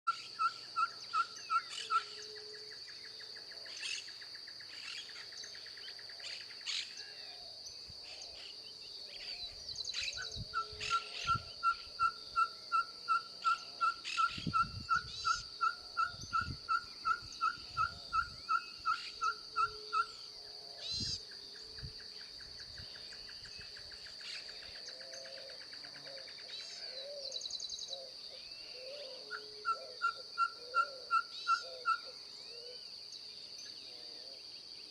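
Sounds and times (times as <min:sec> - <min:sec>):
owl whistled toots: 0:28.8 - 0:32.1.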